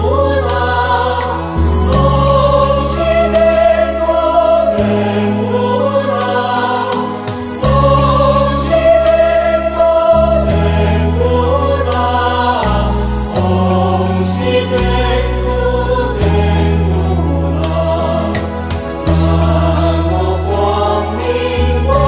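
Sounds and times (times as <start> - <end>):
choir singing a hymn: 0.0 - 22.0
light percussion beat: 18.4 - 19.6.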